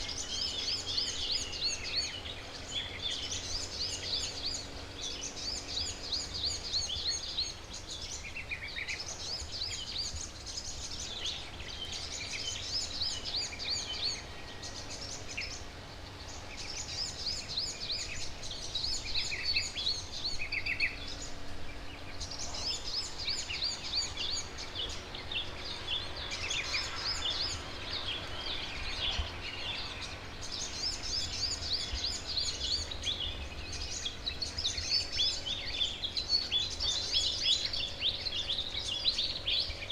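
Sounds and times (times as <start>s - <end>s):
birds chirping: 0.0s - 39.9s
low background noise: 0.0s - 39.9s.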